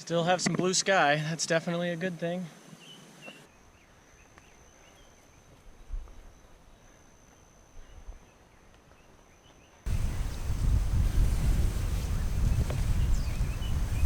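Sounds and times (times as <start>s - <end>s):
high insect drone: 9.9s - 14.0s
wind buffets on microphone: 9.9s - 14.0s
bird chirps: 12.0s - 14.0s.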